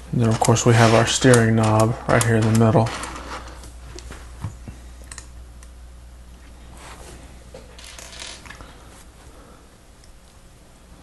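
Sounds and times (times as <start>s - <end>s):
steady low hum: 0.0s - 11.0s
plastic parts clicking and rustling: 0.2s - 3.7s.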